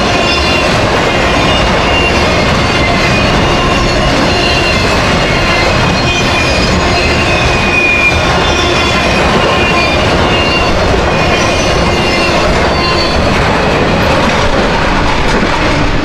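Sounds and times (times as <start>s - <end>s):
high wheel squeals: 0.0s - 13.3s
freight train wheels rumbling: 0.0s - 16.0s.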